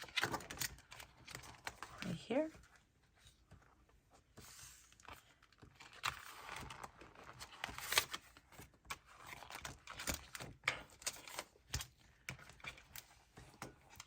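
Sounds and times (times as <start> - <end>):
paper and plastic rustling: 0.0 - 14.0.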